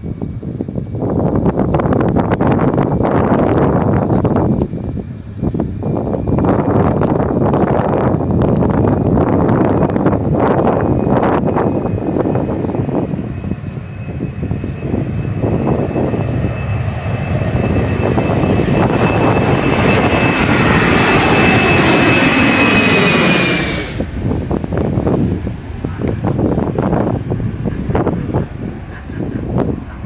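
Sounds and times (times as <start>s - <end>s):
jet engines rumbling and whining: 0.0s - 30.0s.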